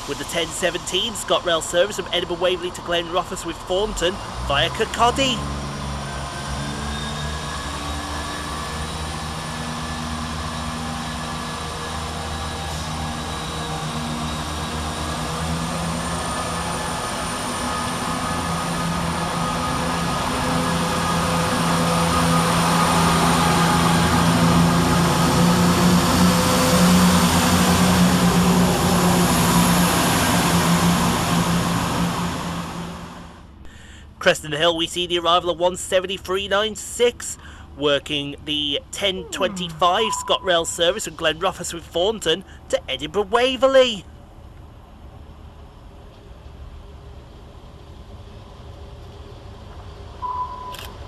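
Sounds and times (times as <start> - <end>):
diesel train engines: 0.0 - 51.0.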